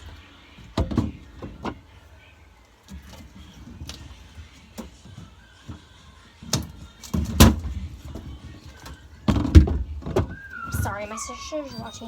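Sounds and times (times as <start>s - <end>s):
things knocking in a refrigerator: 0.6s - 1.9s, 3.0s - 10.4s.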